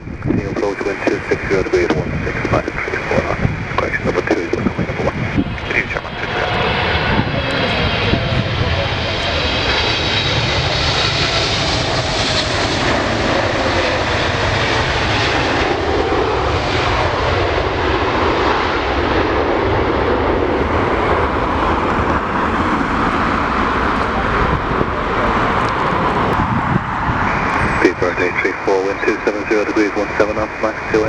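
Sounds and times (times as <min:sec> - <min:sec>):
wind buffeting microphone: 0:00.0 - 0:18.5, 0:19.2 - 0:28.4
jet engines rushing and whining: 0:00.0 - 0:31.0.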